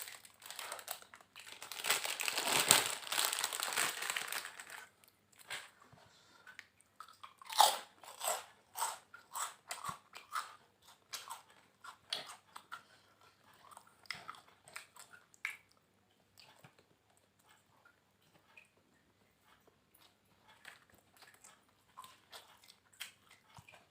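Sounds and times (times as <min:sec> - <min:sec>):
person chewing crunchy food: 0:00.0 - 0:05.7, 0:06.6 - 0:15.2, 0:19.6 - 0:23.9.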